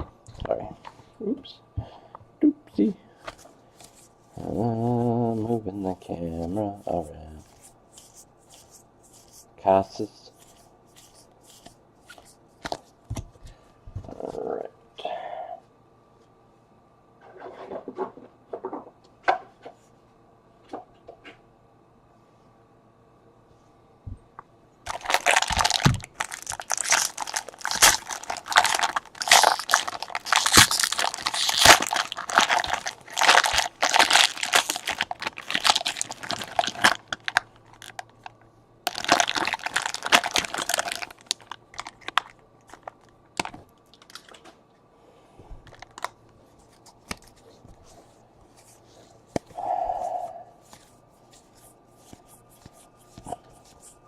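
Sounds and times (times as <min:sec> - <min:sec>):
wrappers crinkling and tearing: 0:24.9 - 0:44.4.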